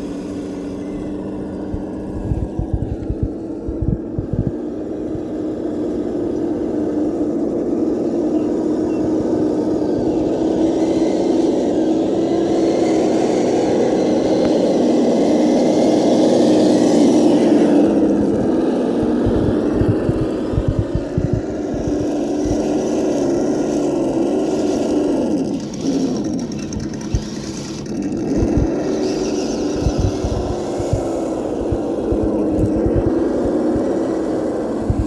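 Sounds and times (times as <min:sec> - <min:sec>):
electric motor whirring: 0:00.0 - 0:35.0
low thumps: 0:01.7 - 0:04.6, 0:19.0 - 0:22.6, 0:28.4 - 0:28.8, 0:29.8 - 0:33.2.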